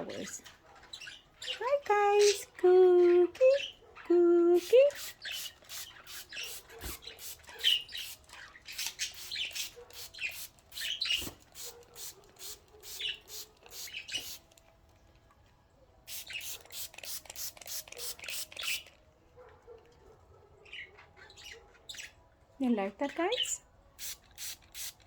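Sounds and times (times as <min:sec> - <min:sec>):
budgerigars chirping: 0:00.1 - 0:02.5, 0:05.0 - 0:11.3, 0:12.9 - 0:14.4.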